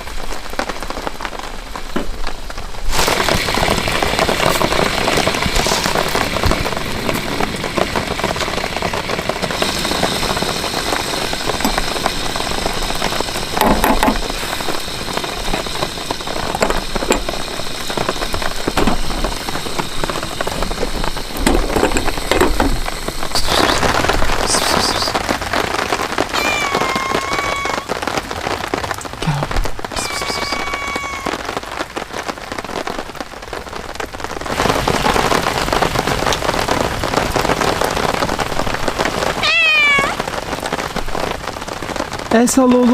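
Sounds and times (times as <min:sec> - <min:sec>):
heavy rain falling: 0:00.0 - 0:42.9
whistle-like tone: 0:30.0 - 0:30.9.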